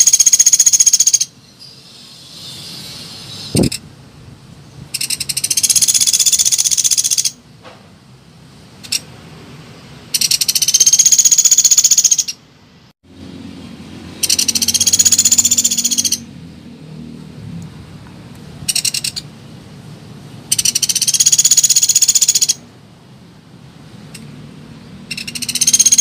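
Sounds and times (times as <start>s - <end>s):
woodpecker trilling: 0.0s - 2.7s, 4.9s - 7.4s, 10.1s - 12.4s, 14.2s - 16.3s, 18.7s - 19.3s, 20.5s - 22.6s, 25.1s - 26.0s.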